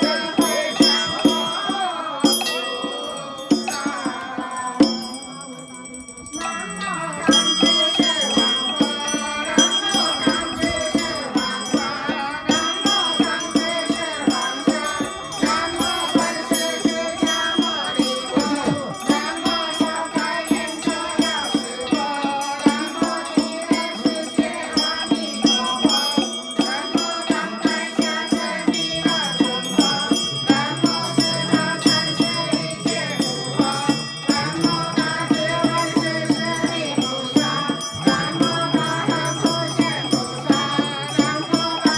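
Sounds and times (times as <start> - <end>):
group chanting melodically: 0.0 - 41.9
percussion beat: 0.0 - 41.9.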